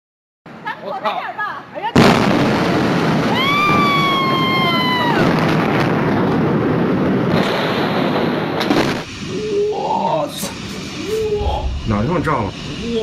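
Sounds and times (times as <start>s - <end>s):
blast crack: 11.2s - 13.0s
explosion roar: 11.2s - 13.0s.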